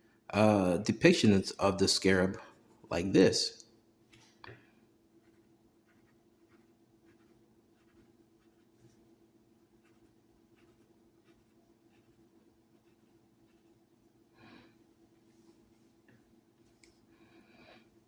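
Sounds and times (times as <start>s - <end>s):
pen scratching on a board: 9.8s - 12.2s.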